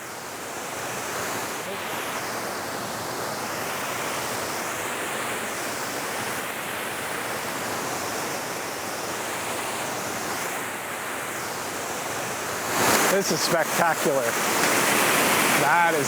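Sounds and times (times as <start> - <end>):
waterfall rushing over rock: 0.0 - 16.0.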